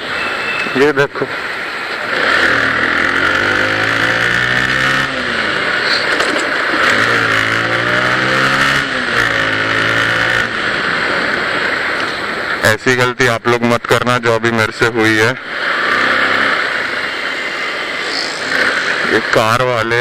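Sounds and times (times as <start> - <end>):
motorcycle engine revving: 0.0 - 12.6, 15.0 - 20.0.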